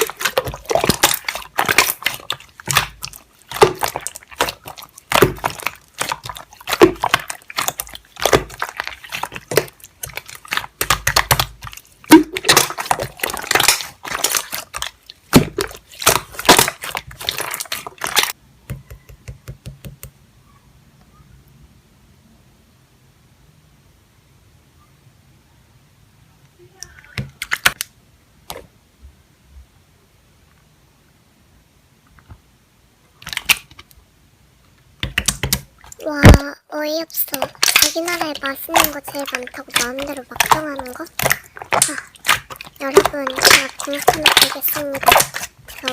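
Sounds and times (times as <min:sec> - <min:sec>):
slime squishing and crackling: 0:00.0 - 0:19.6, 0:26.8 - 0:27.9, 0:33.2 - 0:33.9, 0:35.0 - 0:45.9.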